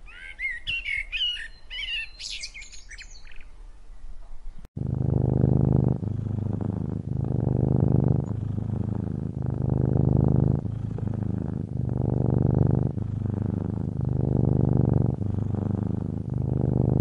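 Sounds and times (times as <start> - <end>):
cat purring: 4.7 - 17.0.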